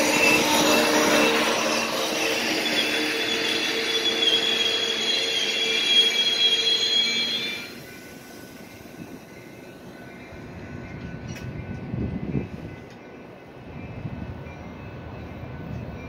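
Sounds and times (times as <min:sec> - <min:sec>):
high-pitched wheel squeal: 0:00.0 - 0:08.5
train cars rolling past: 0:00.0 - 0:16.0.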